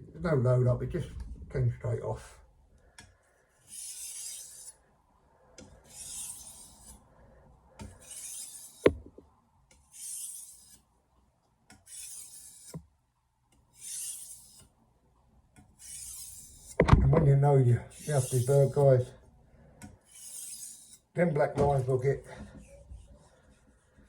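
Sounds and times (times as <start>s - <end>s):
knife rasping on whetstone: 3.6s - 4.8s, 5.8s - 7.0s, 7.8s - 8.9s, 9.9s - 10.8s, 11.7s - 12.8s, 13.8s - 14.7s, 15.8s - 16.8s, 17.9s - 18.8s, 20.0s - 21.1s.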